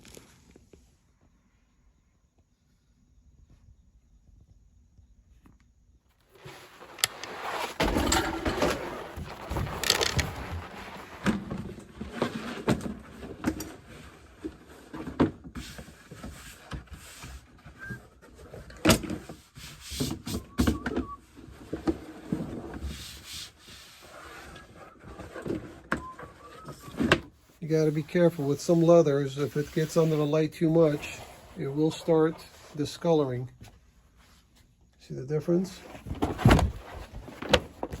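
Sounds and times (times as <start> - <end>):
rustling on workbench: 6.2 - 13.3, 26.6 - 34.7.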